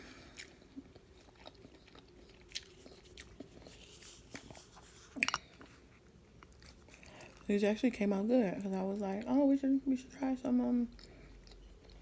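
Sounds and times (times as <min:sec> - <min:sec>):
person chewing: 0:00.0 - 0:07.5, 0:10.9 - 0:12.0.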